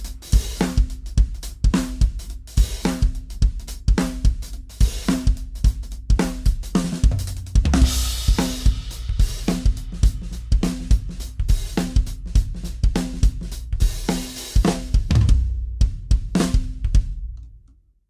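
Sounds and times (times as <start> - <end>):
bass drum kicks: 7.0 - 17.3.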